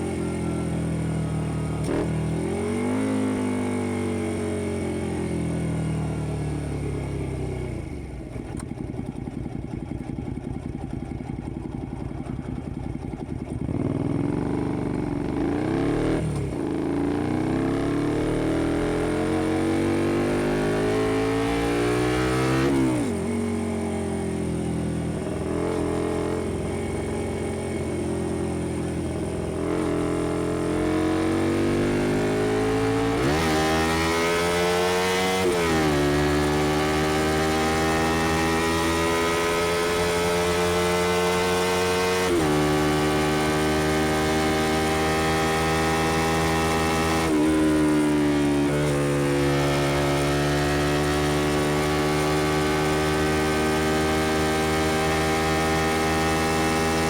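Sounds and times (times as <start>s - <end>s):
motorcycle engine shifting gears: 0.0s - 57.0s.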